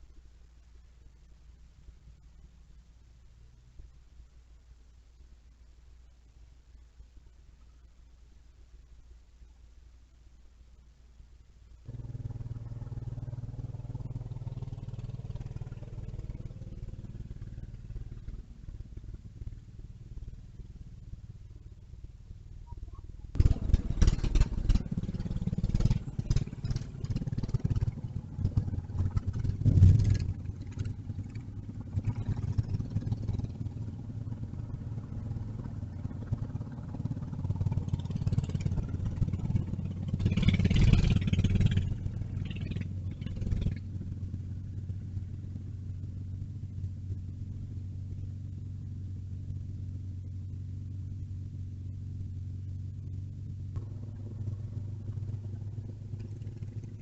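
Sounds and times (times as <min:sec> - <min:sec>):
vehicle engine running: 0:11.7 - 0:57.0.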